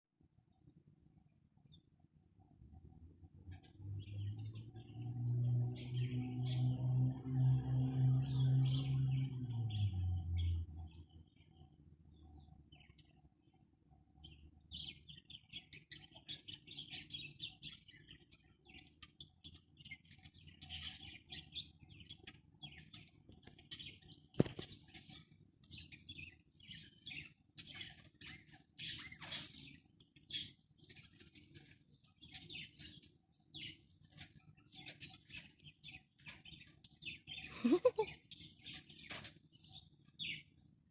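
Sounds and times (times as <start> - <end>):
parrots chirping and twittering: 14.2 - 40.6.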